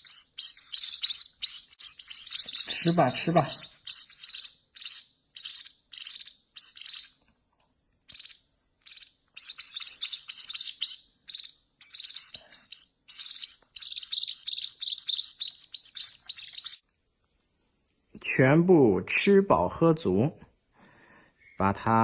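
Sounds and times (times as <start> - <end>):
nestlings begging chirps: 0.0 - 7.2, 8.1 - 16.8.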